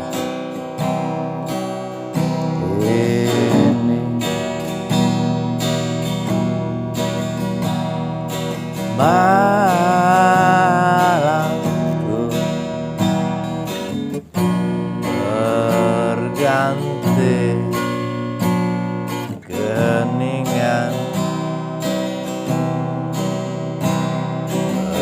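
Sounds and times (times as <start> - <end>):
acoustic guitar strumming: 0.0 - 25.0
person singing: 2.3 - 5.2, 8.8 - 18.3, 19.2 - 21.5, 24.7 - 25.0.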